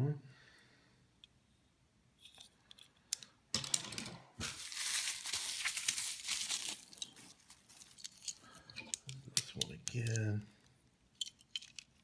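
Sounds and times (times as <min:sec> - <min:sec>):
plastic crinkling and rustling: 0:04.4 - 0:08.7.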